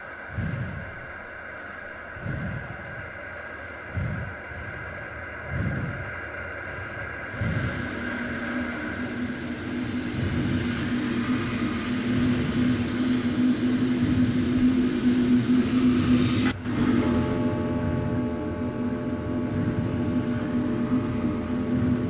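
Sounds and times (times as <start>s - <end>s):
steady low hum: 7.0s - 22.0s
low rumble: 7.4s - 22.0s.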